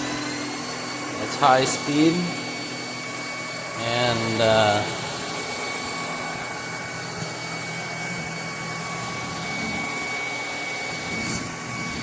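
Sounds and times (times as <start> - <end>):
stick vacuum whining: 0.0 - 12.0.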